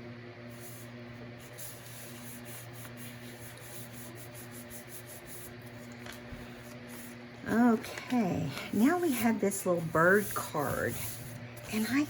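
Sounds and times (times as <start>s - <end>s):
low electrical hum: 0.0s - 12.0s
paper being rubbed by hand: 0.5s - 5.8s, 8.7s - 12.0s.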